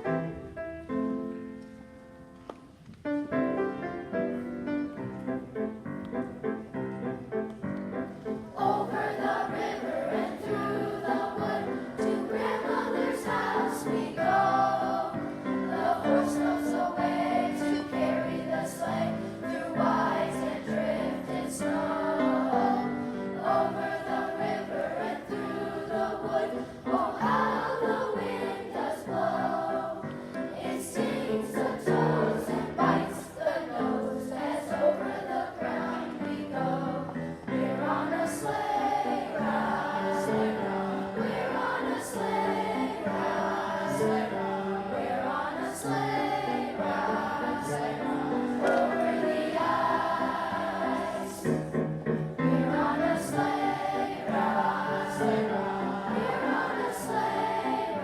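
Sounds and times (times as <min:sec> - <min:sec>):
children's choir singing: 0:08.0 - 0:58.0.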